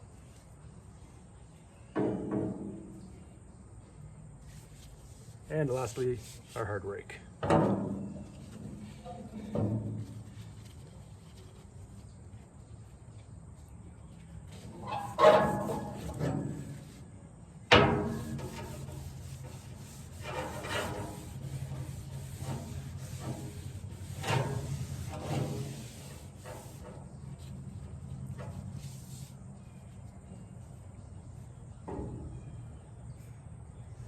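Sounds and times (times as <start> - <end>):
rag rubbing wooden handle: 14.5 - 17.0, 17.8 - 29.4.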